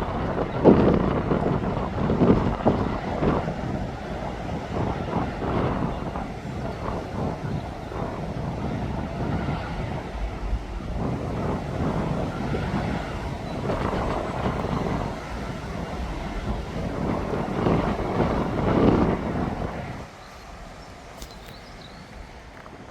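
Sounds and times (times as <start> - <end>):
heavy earthmoving vehicles running: 0.0 - 22.9.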